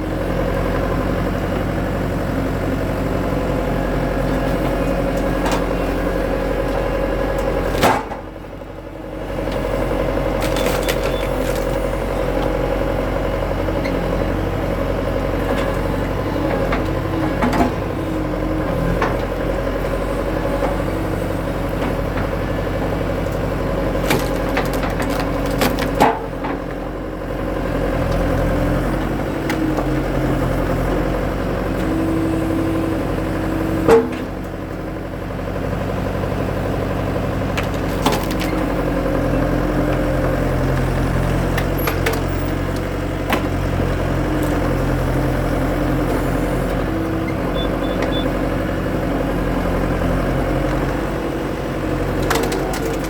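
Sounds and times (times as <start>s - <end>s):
skid steer engine running: 0.0s - 53.0s
wood splitting cracks: 10.4s - 11.8s, 23.9s - 26.3s, 37.6s - 38.7s.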